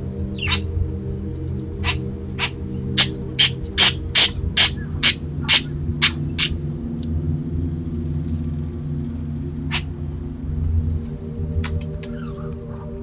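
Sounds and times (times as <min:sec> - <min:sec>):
steady low hum: 0:00.0 - 0:13.0
animal harsh calls: 0:01.8 - 0:06.6.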